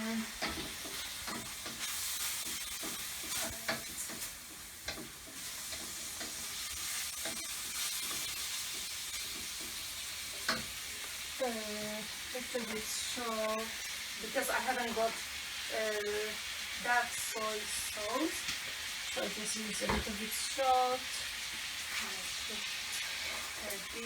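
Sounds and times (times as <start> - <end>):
rice sizzling in a pan: 0.0 - 24.0
spatula knocking and scraping pan: 0.4 - 10.8, 19.7 - 20.4.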